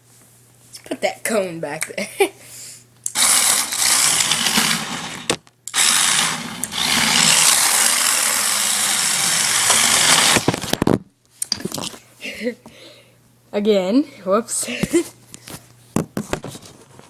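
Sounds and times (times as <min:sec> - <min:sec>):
toy car electric motor whirring: 0:03.1 - 0:10.5.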